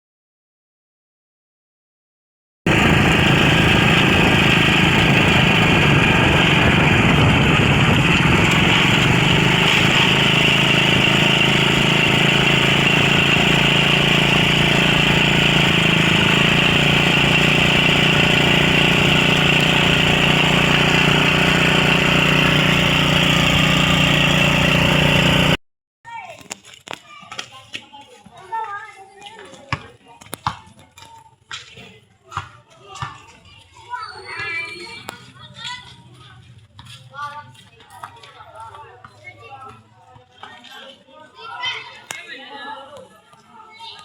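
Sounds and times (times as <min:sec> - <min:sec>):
small engine running: 0:02.7 - 0:25.6.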